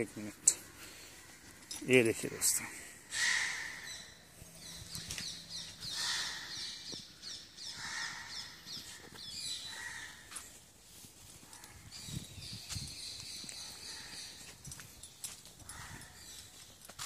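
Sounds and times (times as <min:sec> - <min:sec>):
wild birds chirping: 0:00.0 - 0:10.7, 0:11.3 - 0:17.0.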